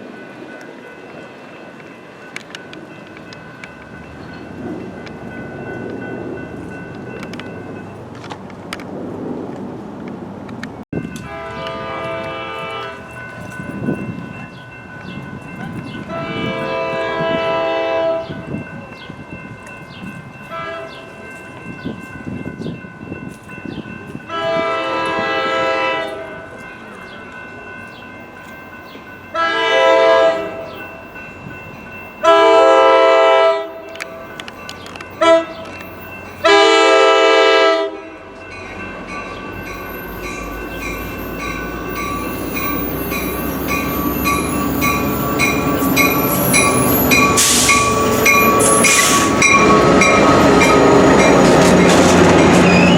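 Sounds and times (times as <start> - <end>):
train rumble: 0.0 - 52.9
train air horn blasts: 11.2 - 13.0, 16.1 - 18.4, 20.5 - 21.0, 24.3 - 26.4, 29.3 - 30.8, 32.2 - 33.8, 35.2 - 35.7, 36.4 - 38.0, 46.3 - 51.7.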